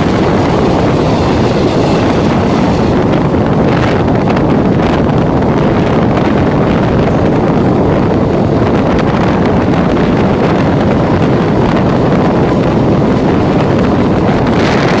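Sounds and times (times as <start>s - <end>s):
electric train running: 0.0s - 15.0s
wind buffeting microphone: 0.0s - 15.0s.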